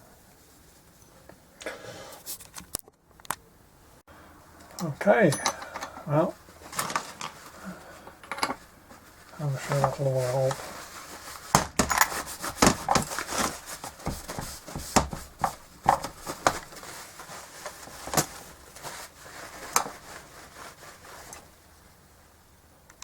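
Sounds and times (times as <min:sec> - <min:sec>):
scraping rubs: 0:08.9 - 0:21.5.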